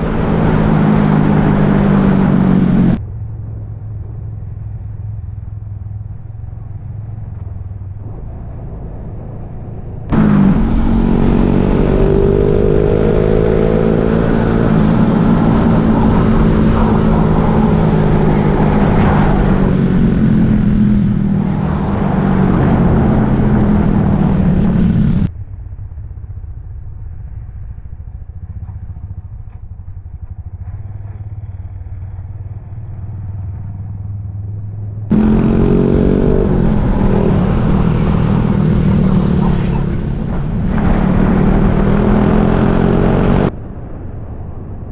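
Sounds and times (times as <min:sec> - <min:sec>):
wind rush on microphone: 0:00.0 - 0:05.0, 0:06.0 - 0:26.6, 0:35.1 - 0:44.9
motorcycle engine running: 0:00.0 - 0:07.9, 0:10.1 - 0:43.5.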